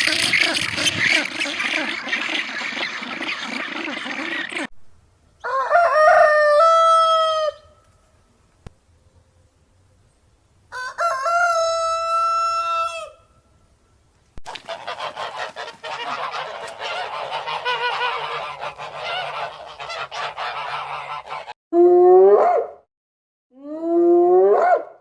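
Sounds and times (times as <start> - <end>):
flock calls overlapping: 0.0 - 4.7, 14.5 - 21.6
fowl calling: 0.0 - 4.7, 14.5 - 21.6.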